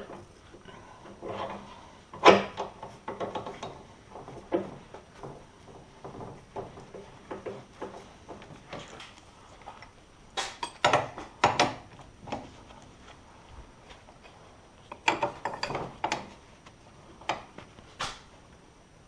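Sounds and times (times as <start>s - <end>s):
tools and metal parts clanking: 10.6s - 12.4s, 14.9s - 16.4s.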